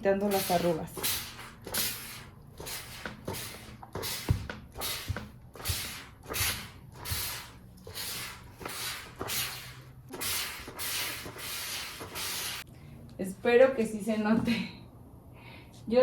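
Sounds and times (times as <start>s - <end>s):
garment steamer hissing swish: 0.3s - 12.7s.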